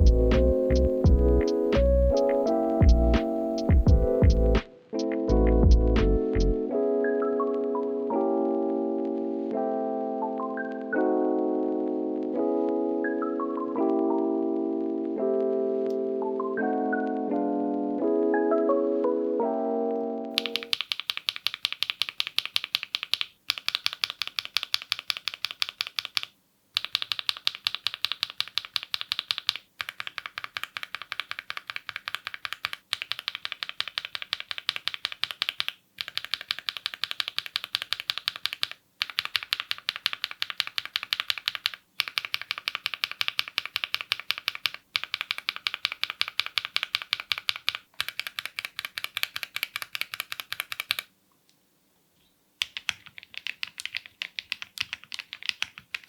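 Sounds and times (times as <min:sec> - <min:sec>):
mechanical keyboard typing: 0:00.0 - 0:01.2, 0:20.3 - 0:51.1, 0:52.6 - 0:56.0.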